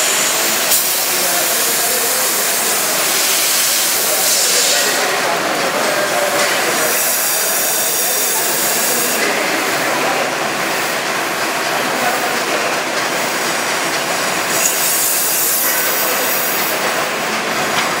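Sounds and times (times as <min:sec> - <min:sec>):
water spray hissing: 0:00.0 - 0:05.1, 0:14.4 - 0:16.9
car wash machine running: 0:00.0 - 0:18.0.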